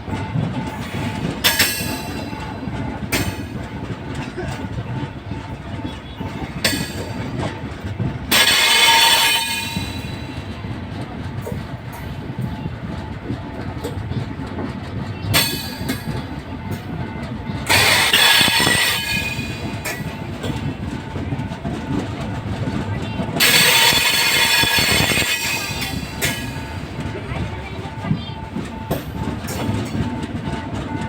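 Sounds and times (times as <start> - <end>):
train rumbling on rails: 0.0 - 31.0
high-pitched train screech: 5.9 - 7.5, 8.3 - 10.7, 17.6 - 22.0, 22.6 - 27.4.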